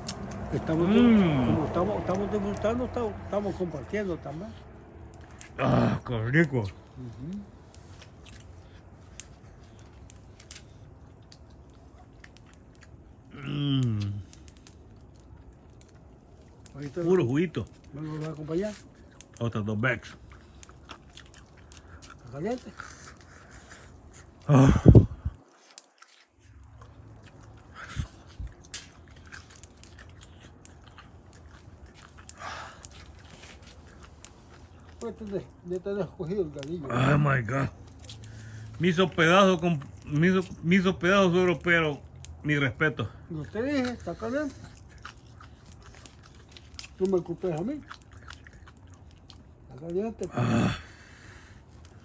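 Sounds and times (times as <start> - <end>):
small clicks and smacks: 0.0 - 0.6, 6.8 - 13.3, 37.8 - 38.8
low steady hum: 0.0 - 52.0
person chewing meat: 0.0 - 52.0.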